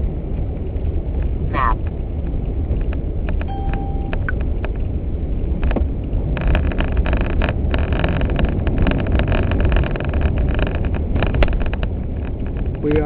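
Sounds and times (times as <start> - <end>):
engine and tyres on snowy road: 0.0 - 13.0
crackle of short clicks: 5.6 - 13.0.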